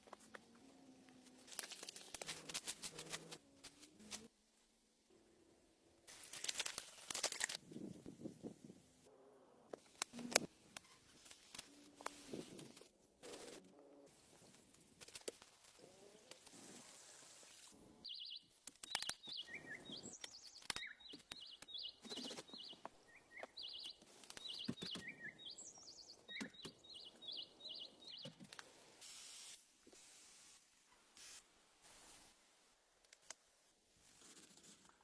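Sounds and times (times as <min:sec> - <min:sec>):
small bird chirping: 0:18.0 - 0:28.4.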